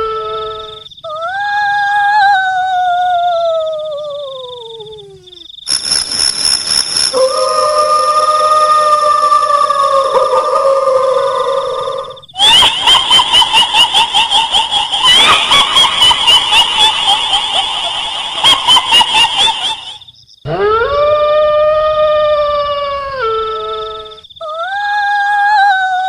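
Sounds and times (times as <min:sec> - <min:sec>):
faint high whine: 0:05.6 - 0:09.3
eerie howling: 0:07.1 - 0:26.0
shrill yelping cackles: 0:12.4 - 0:21.0.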